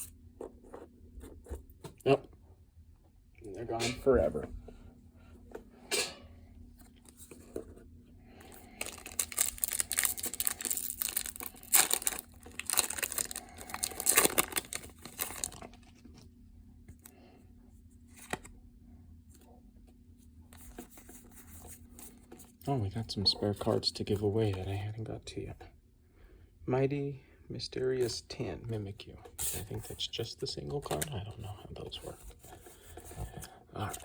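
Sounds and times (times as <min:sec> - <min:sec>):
foil wrapper tearing and crinkling: 0:08.7 - 0:16.0.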